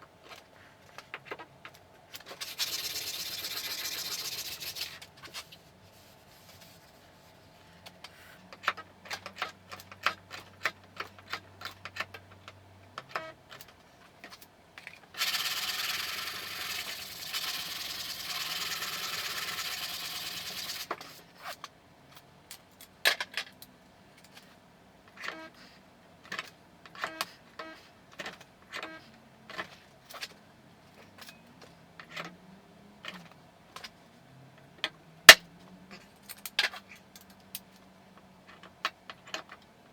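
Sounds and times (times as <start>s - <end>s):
hand sanding: 2.4s - 5.0s.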